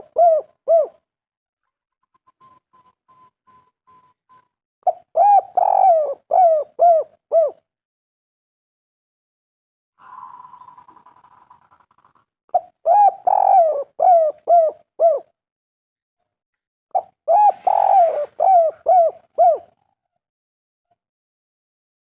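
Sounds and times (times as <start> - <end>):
dove cooing: 0.0 - 1.0, 4.8 - 7.6, 12.5 - 15.4, 17.0 - 20.0.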